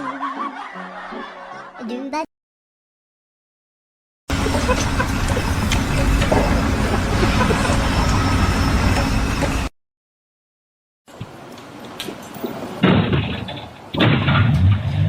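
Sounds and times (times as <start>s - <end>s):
heavy engine rumbling: 4.3s - 9.7s.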